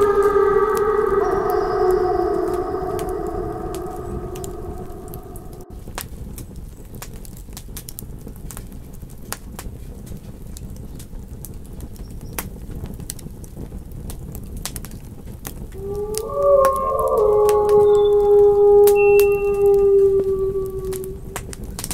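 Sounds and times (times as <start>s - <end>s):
wolves howling: 0.0s - 5.8s, 15.8s - 21.9s.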